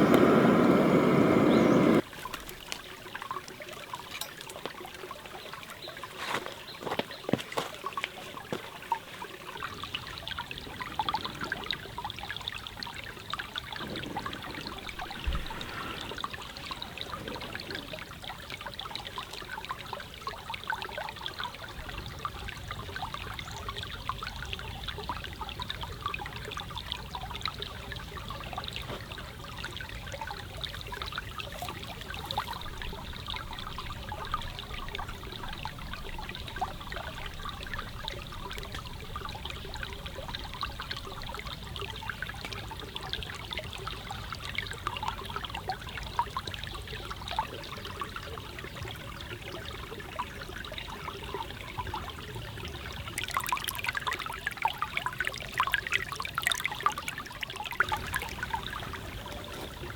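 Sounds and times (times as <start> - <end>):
sharp crackles and clicks: 0.0 - 2.8
stream trickling: 0.0 - 59.9.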